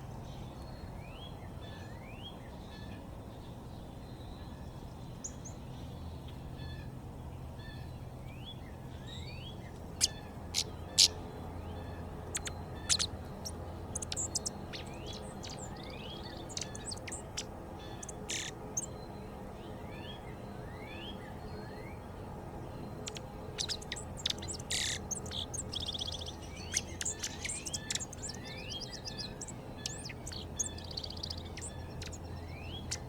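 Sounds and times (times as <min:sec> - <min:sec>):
steady low hum: 0:08.7 - 0:33.0
birds calling rising notes: 0:10.0 - 0:19.0, 0:22.8 - 0:33.0
sharp loud bird chips: 0:23.1 - 0:32.2.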